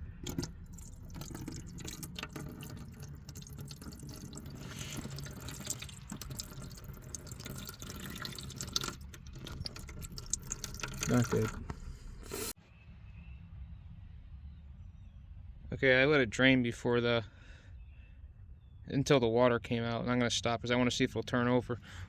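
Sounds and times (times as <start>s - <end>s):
oil stream pouring: 0.0s - 12.6s.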